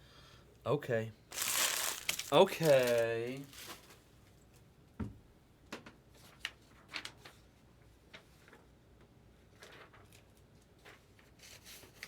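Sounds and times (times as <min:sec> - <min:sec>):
trading cards clicking and rustling: 0:01.4 - 0:03.5.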